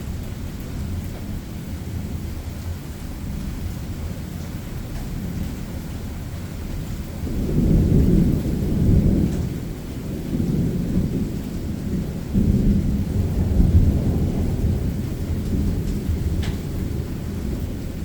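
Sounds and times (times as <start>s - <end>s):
rolling thunder: 7.2s - 18.0s.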